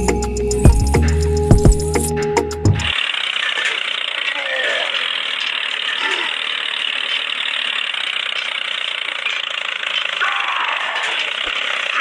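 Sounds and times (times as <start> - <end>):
small motor whirring: 2.9 - 12.0.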